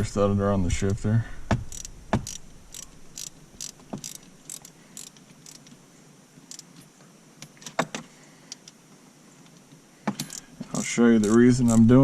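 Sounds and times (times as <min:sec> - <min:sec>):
hand tool tightening bolts: 0:01.5 - 0:05.8, 0:06.5 - 0:08.7, 0:10.1 - 0:12.0.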